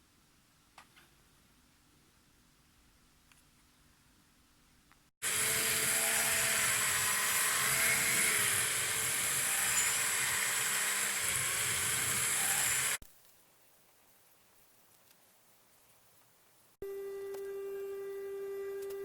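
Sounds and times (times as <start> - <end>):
electric power tool running: 5.2 - 13.0.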